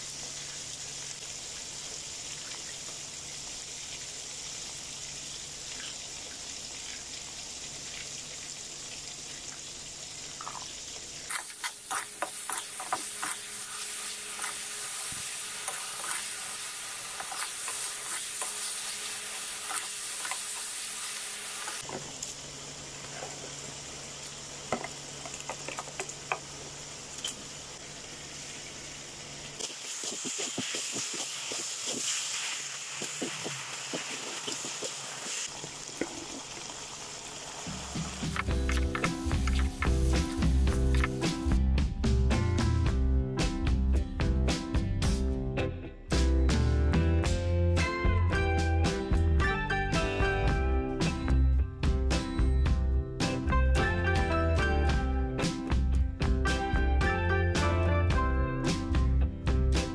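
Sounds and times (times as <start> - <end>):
food sizzling in a wok: 0.0 - 41.6.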